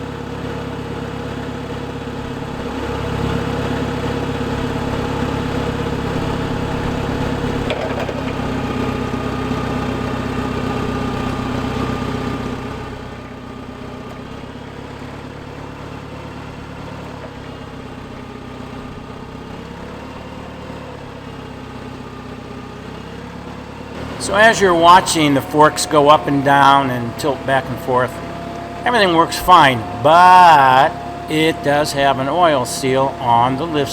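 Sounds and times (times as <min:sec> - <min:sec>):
forklift engine running: 0:00.0 - 0:33.9.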